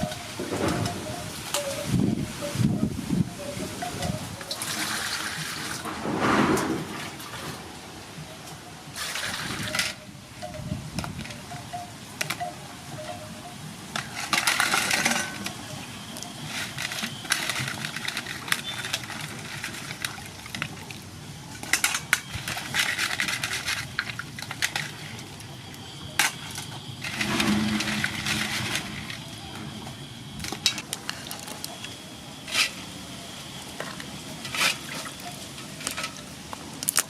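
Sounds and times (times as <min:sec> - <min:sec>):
crab shells clicking and knocking: 0:35.8 - 0:37.0.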